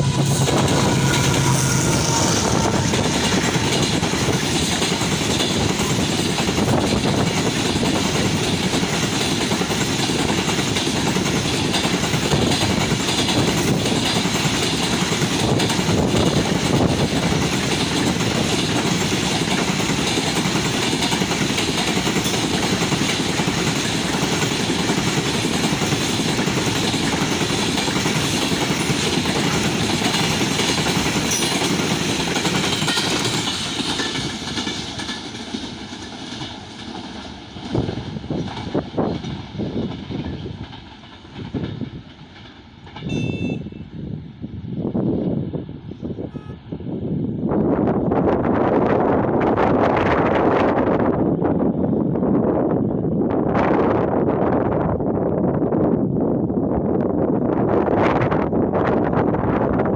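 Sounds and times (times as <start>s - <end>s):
train wheels rolling on rails: 0.0s - 46.2s
wagons clickety-clack: 3.2s - 43.2s.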